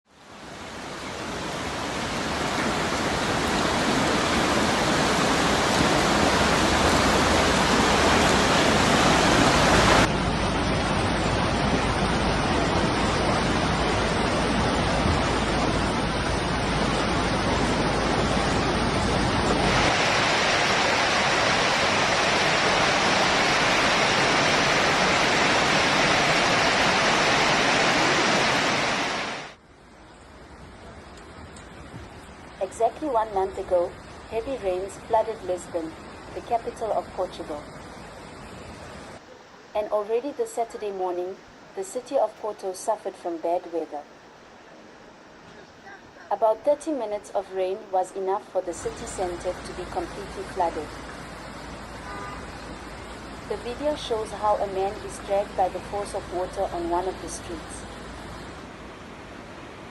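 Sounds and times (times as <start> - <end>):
floodwater rushing: 0.1 - 59.9.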